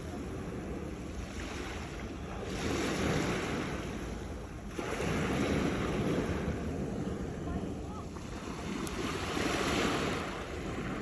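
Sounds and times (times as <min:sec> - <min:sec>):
sea waves breaking on rocks: 0:07.7 - 0:11.0.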